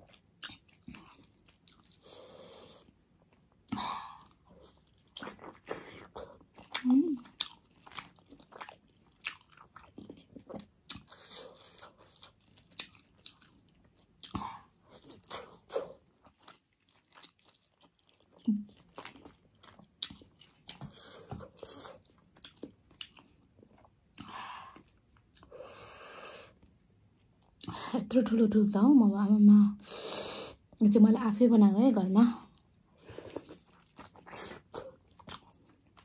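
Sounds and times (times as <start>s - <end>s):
person chewing and biting: 0.0s - 3.6s, 4.2s - 25.6s, 32.5s - 36.0s.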